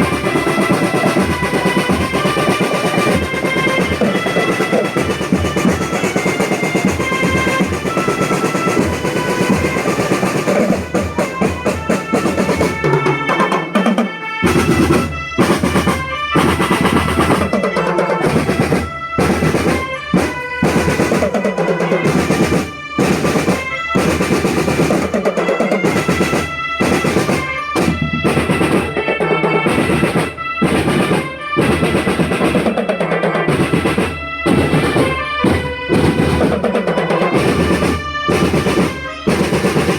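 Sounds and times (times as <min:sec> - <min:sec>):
held melody: 0:00.0 - 0:39.9
snare drum rolls: 0:00.0 - 0:39.9.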